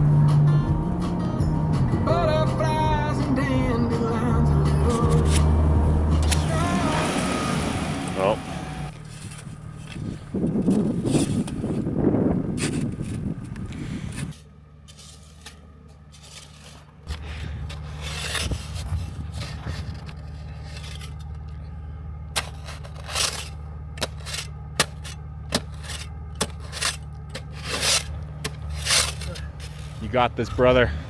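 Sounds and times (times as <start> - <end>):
scraping sounds: 13.8 - 30.3
truck engine idling: 14.4 - 31.0.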